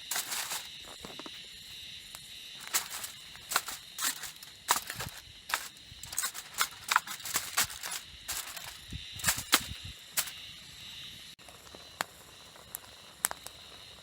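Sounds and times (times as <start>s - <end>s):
campfire crackling and popping: 11.5s - 13.6s.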